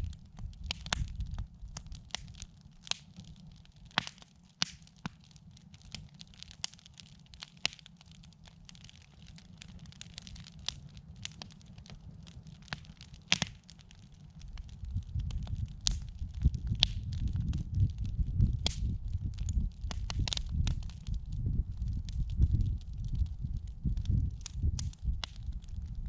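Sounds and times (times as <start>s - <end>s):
steady low rumble: 0.0s - 2.4s, 14.4s - 26.0s
campfire crackling and popping: 0.0s - 26.0s.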